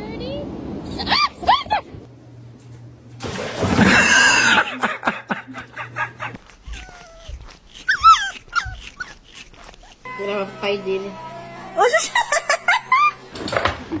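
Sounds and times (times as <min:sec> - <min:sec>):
dog whining and yipping: 0:06.4 - 0:10.1.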